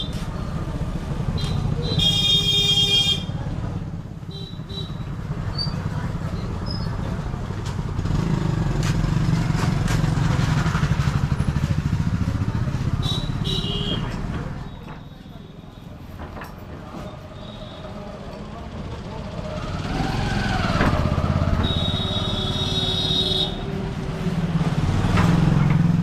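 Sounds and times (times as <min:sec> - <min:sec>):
motorcycle engine running: 0:07.8 - 0:13.9
horn sounding: 0:21.4 - 0:23.8.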